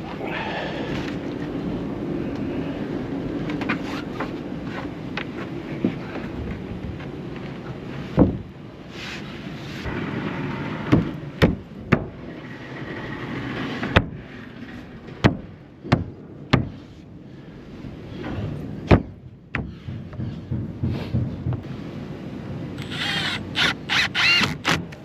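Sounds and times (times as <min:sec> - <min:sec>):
steady rumbling: 0:00.0 - 0:25.0
sharp knocks and bangs: 0:15.2 - 0:16.8, 0:18.8 - 0:21.7.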